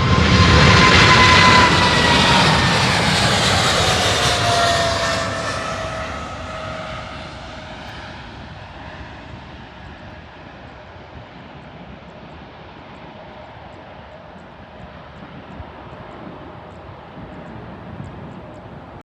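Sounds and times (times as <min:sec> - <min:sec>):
jet engines whining: 0:00.0 - 0:12.0.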